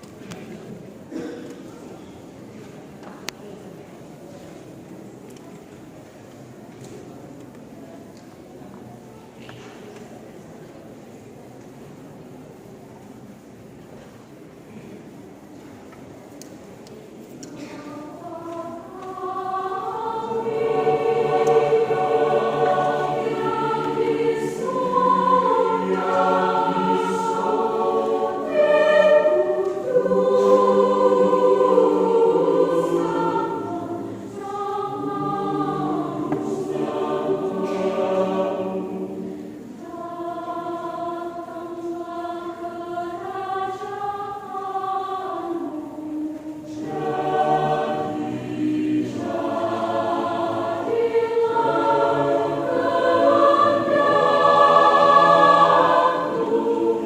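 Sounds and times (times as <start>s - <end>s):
church choir singing: 14.0s - 57.0s.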